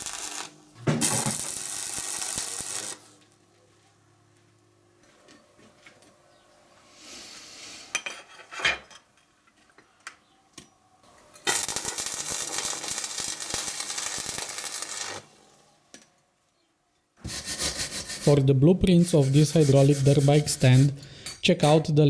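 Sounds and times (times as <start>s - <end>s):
welding arc crackling: 0.0s - 3.3s, 11.3s - 15.6s.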